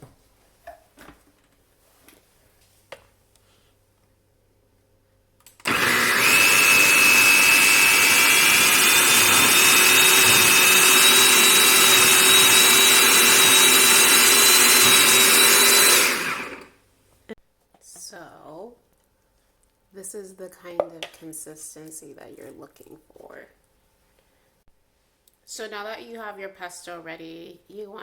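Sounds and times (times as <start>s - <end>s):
food processor whining: 5.6s - 16.7s.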